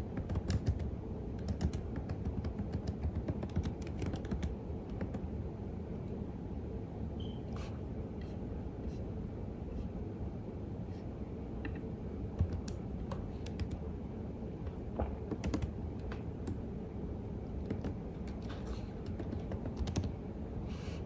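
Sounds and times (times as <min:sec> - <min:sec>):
low background hum: 0:00.0 - 0:21.0
keyboard typing: 0:00.2 - 0:05.2, 0:12.4 - 0:13.8, 0:15.3 - 0:16.6, 0:17.6 - 0:20.1.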